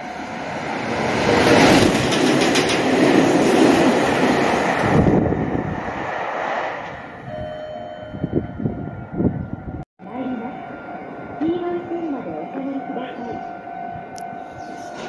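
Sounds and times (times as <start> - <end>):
train wheels rushing on rail: 0.2 - 7.2.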